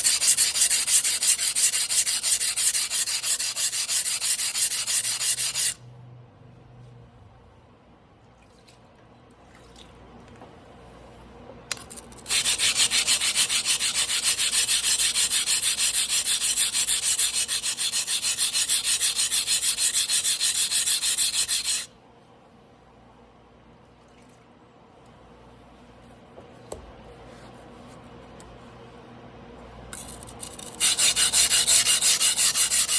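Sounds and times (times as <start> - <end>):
blade grinding on a whetstone: 0.0 - 5.8, 12.2 - 21.9, 30.4 - 32.9.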